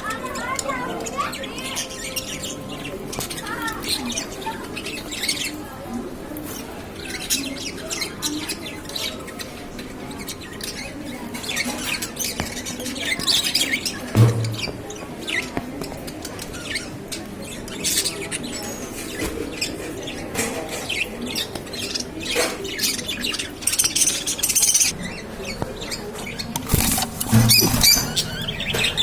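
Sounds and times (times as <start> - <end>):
cage birds chirping: 0.0 - 29.0.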